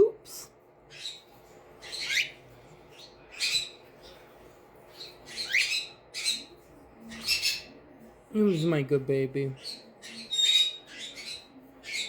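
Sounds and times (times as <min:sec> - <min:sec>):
parrot squawking: 0:00.9 - 0:02.4, 0:05.0 - 0:06.5, 0:09.6 - 0:12.0.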